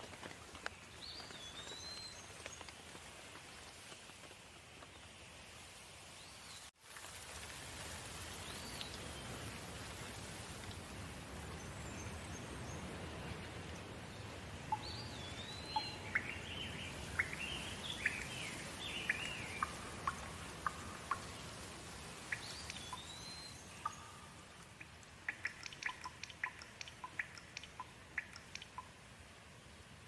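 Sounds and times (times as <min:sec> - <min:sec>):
steady rain: 0:00.0 - 0:30.0
water drips ticking: 0:10.6 - 0:29.1.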